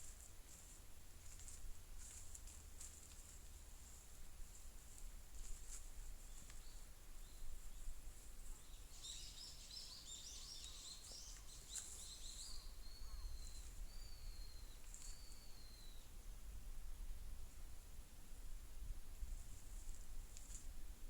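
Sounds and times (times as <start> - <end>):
thin high bird whistles: 9.0 - 16.0.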